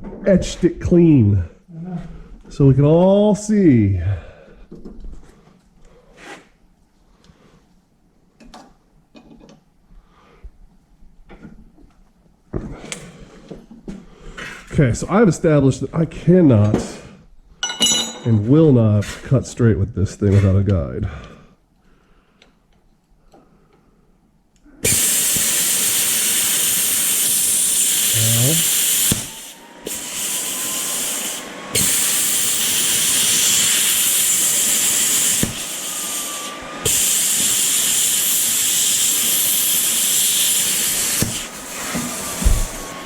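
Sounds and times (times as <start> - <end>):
plasma cutter hissing: 24.8 - 42.8.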